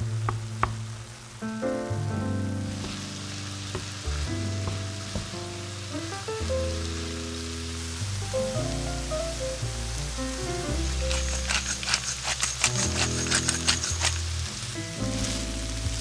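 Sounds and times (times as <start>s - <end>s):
background music: 0.0s - 16.0s
meat sizzling in a frying pan: 2.5s - 16.0s
wooden spoon scraping a pan: 10.8s - 14.5s.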